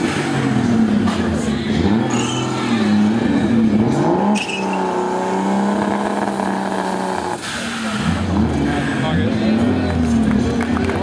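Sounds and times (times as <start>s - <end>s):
engine revving high during burnout: 1.6s - 9.9s.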